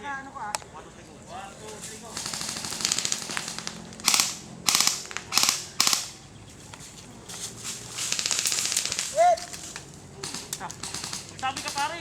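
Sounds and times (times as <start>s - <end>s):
airsoft guns firing full auto: 1.6s - 6.3s, 7.6s - 12.0s.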